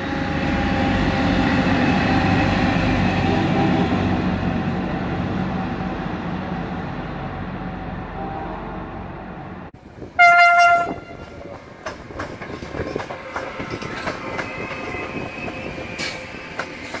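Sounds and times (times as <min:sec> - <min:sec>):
train rumbling past: 0:00.0 - 0:17.0
train horn blast: 0:10.2 - 0:11.4
wheels clacking over rail joints: 0:10.6 - 0:17.0.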